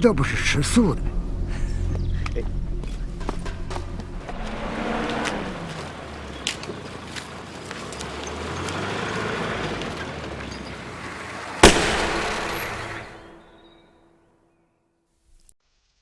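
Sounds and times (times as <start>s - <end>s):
vehicle engine and tyres approaching: 0.0s - 13.9s
sharp ringing bang: 11.6s - 13.8s.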